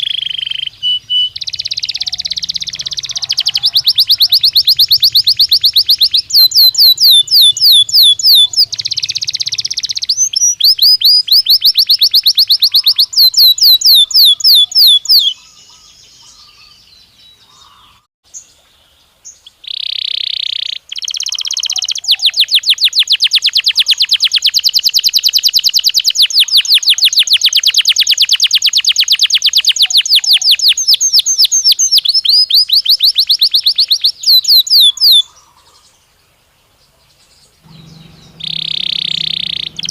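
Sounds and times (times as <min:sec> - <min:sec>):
short buzzy bird note: 0:37.6 - 0:39.9.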